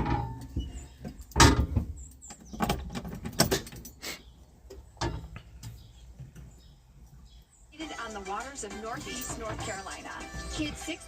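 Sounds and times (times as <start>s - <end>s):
knocks and clicks with rattling: 0.0s - 4.0s.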